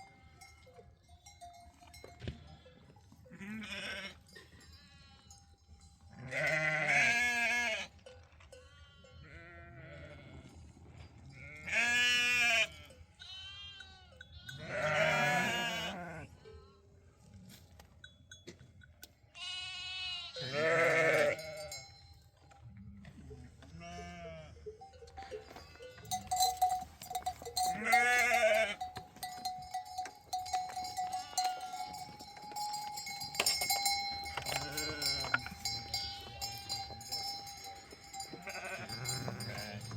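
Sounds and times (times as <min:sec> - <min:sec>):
livestock bell ringing: 0:00.0 - 0:16.7, 0:17.9 - 0:22.6, 0:23.3 - 0:39.9
sheep bleating: 0:03.3 - 0:04.2, 0:06.2 - 0:07.9, 0:08.8 - 0:10.4, 0:11.4 - 0:16.3, 0:19.4 - 0:21.8, 0:23.6 - 0:24.6, 0:27.4 - 0:29.4, 0:30.9 - 0:32.1, 0:34.2 - 0:37.1, 0:38.0 - 0:39.9.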